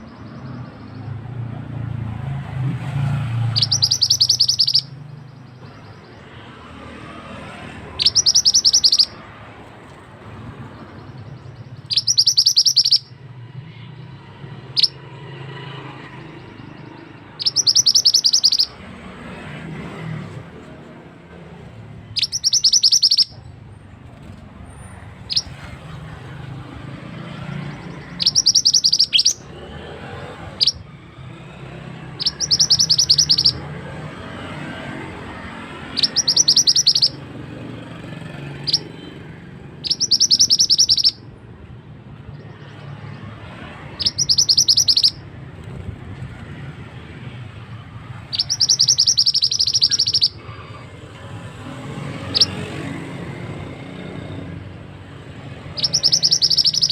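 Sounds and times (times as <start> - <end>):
bird trilling high notes: 3.4 - 6.2, 8.0 - 9.2, 11.0 - 13.2, 16.5 - 18.8, 22.1 - 23.5, 25.3 - 25.6, 27.8 - 29.5, 32.2 - 33.6, 35.9 - 37.3, 39.8 - 41.3, 44.0 - 45.2, 48.3 - 50.4, 55.6 - 56.9
short high bird chirps: 3.5 - 6.2, 8.0 - 9.2, 11.4 - 13.2, 17.4 - 18.8, 22.1 - 23.5, 25.3 - 25.7, 27.7 - 29.4, 32.2 - 33.6, 35.9 - 37.2, 38.6 - 38.9, 39.8 - 41.3, 44.0 - 45.2, 48.3 - 50.4, 52.3 - 52.6, 55.7 - 56.9.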